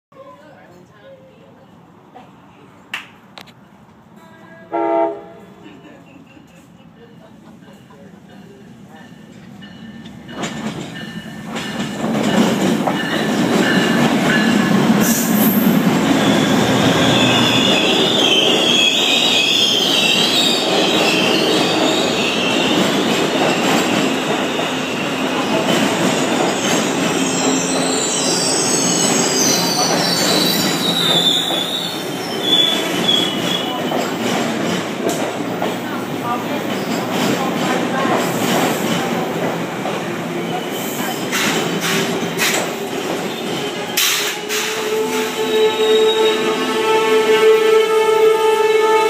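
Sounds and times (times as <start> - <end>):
diesel train rumbling past: 3.6 - 49.0
high wavering wheel squeal: 15.0 - 22.7, 26.7 - 33.8.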